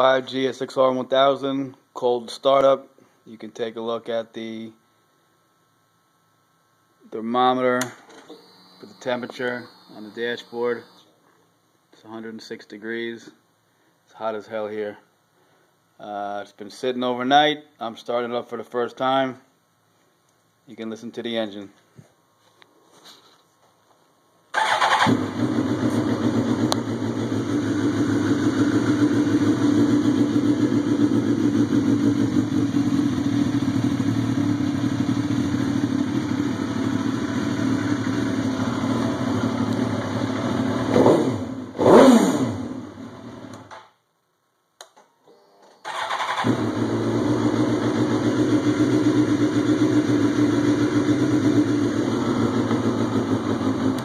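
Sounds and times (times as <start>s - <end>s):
motorcycle engine starting and idling: 24.5s - 44.0s, 45.3s - 54.0s.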